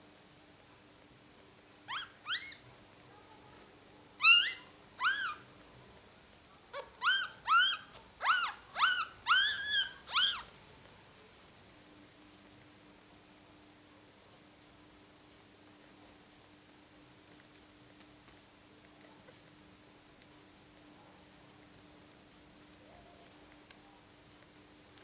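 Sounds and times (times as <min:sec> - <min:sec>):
puppies squeaking: 0:01.9 - 0:02.6, 0:04.2 - 0:05.4, 0:06.8 - 0:10.5.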